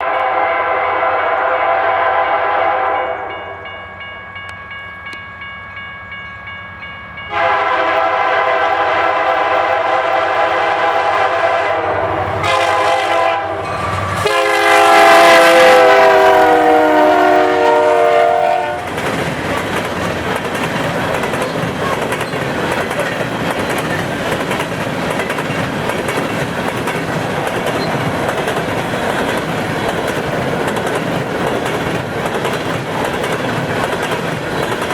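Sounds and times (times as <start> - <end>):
locomotive air horn blasts: 0.0 - 3.6, 7.3 - 19.0
train rumbling and clacking past: 0.0 - 34.9.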